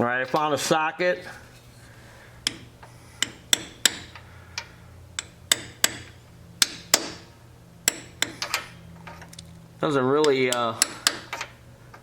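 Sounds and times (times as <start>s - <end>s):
hammer tapping on metal socket: 2.4s - 7.3s, 7.9s - 8.7s, 10.2s - 11.5s.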